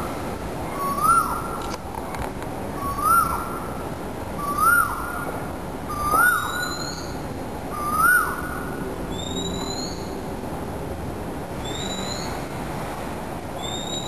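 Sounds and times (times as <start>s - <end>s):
steady background hiss: 0.0s - 14.0s
higher rising bird whistle: 2.8s - 3.4s, 5.9s - 10.1s, 11.6s - 12.4s, 13.6s - 14.0s.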